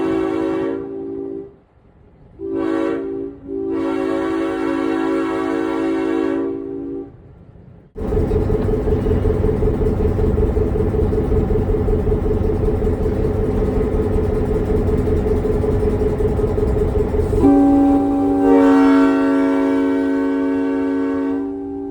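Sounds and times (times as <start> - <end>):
locomotive air horn chord: 0.0 - 1.6, 2.4 - 7.2, 15.0 - 21.9
diesel engine rumbling: 7.3 - 21.9.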